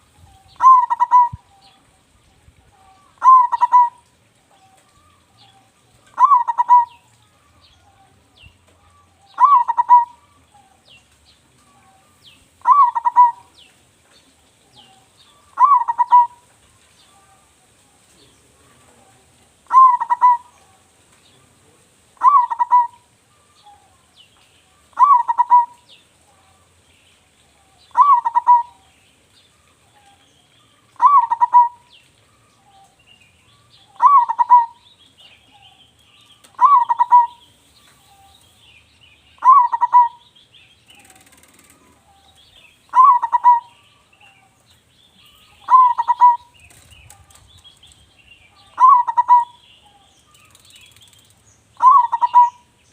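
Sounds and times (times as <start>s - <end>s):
dove cooing: 0.0s - 2.0s, 2.7s - 8.2s, 8.8s - 10.8s, 11.6s - 13.6s, 14.7s - 16.5s, 18.5s - 20.9s, 22.2s - 24.0s, 24.9s - 26.6s, 27.6s - 28.9s, 30.8s - 33.0s, 33.6s - 34.9s, 36.5s - 38.3s, 39.4s - 40.3s, 40.9s - 44.6s, 45.3s - 47.5s, 48.5s - 50.1s, 51.8s - 52.7s
small birds chirping: 0.0s - 52.9s.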